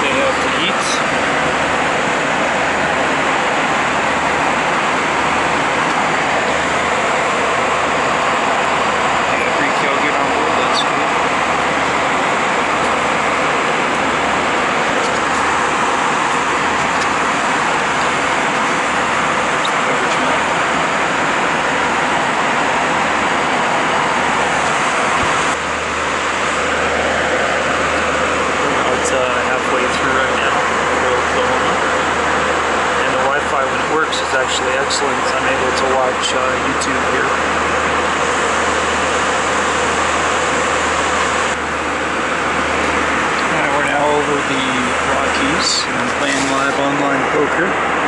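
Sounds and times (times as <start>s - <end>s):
airplane cabin noise: 0.0s - 48.0s.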